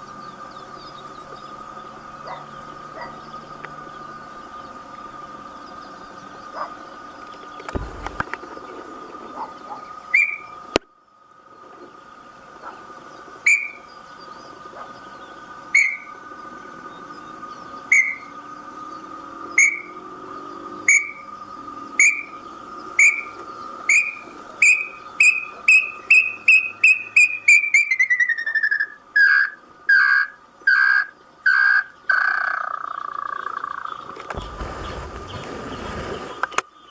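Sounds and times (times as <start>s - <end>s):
bird whistling: 23.9s - 29.0s.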